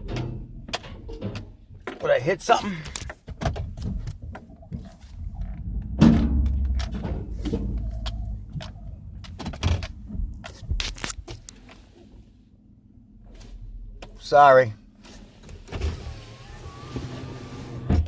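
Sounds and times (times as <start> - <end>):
knocks and rattles from cab: 0.0 - 11.6, 17.7 - 18.0.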